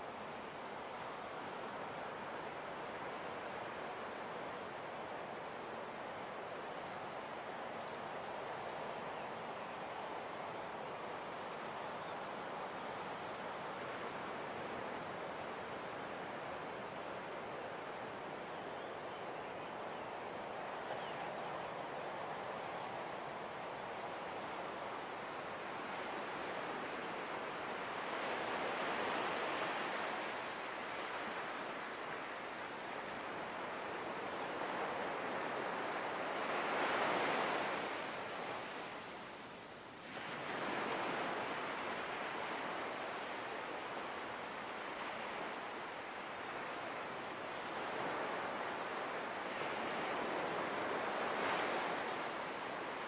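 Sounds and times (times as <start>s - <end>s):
ocean surf washing: 19.8s - 53.0s.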